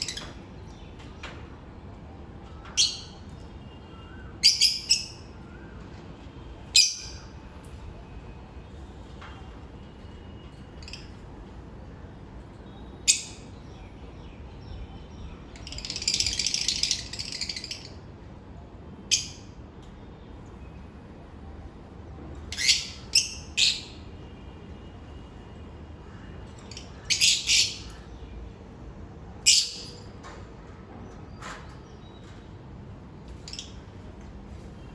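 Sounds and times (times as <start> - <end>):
birds calling high-pitched: 0.0 - 1.4, 2.4 - 7.9, 9.9 - 11.3, 12.5 - 18.3, 19.1 - 19.6, 22.4 - 25.4, 26.0 - 30.3, 33.2 - 34.9
birds chattering rapidly: 2.5 - 5.4, 12.9 - 18.0, 26.0 - 28.7, 29.4 - 30.2, 33.2 - 34.9.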